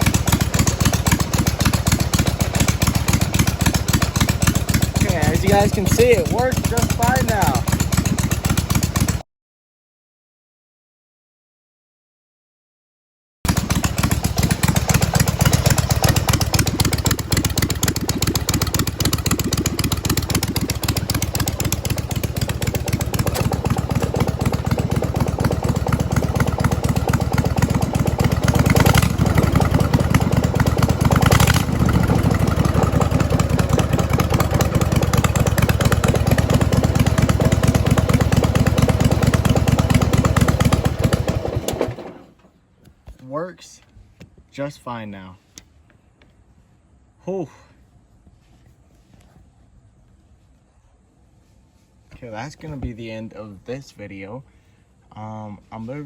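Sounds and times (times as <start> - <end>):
loud unmuffled lawnmower engine: 0.0 - 9.2, 13.5 - 42.5.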